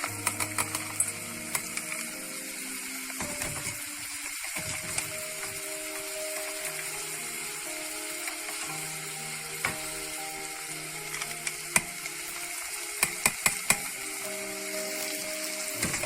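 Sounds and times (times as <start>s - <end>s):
utensil clicking against pan: 0.0s - 2.0s, 13.0s - 14.0s
vegetables sizzling in a pan: 0.0s - 16.0s.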